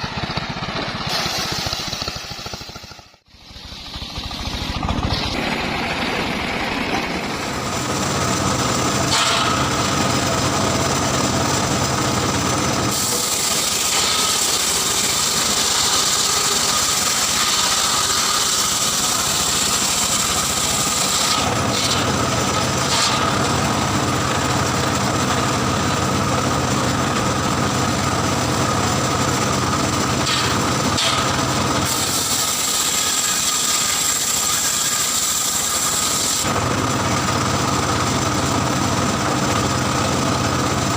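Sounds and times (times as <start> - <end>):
circular saw cutting wood: 0.0 - 40.9.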